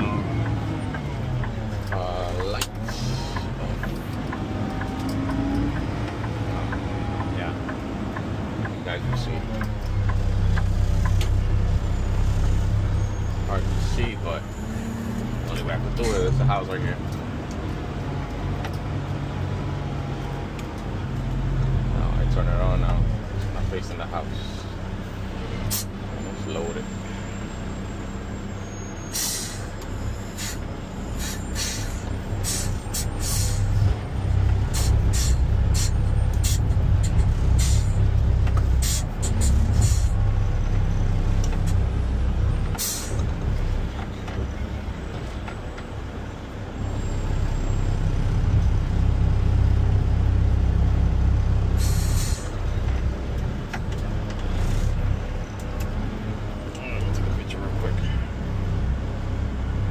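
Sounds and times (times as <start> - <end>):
sharp air hisses: 31.2 - 33.8, 51.8 - 52.5.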